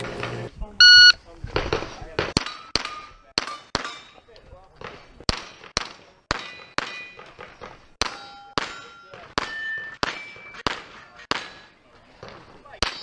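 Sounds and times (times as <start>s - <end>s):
steel target plate ringing: 6.3s - 7.4s, 8.0s - 11.8s.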